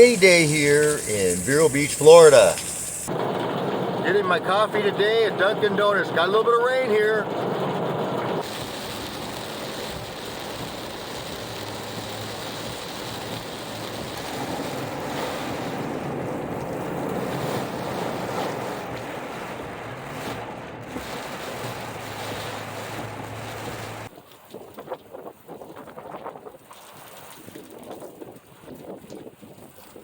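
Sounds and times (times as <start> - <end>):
car on wet road: 0.0 - 24.1
heavy rain: 0.0 - 24.1.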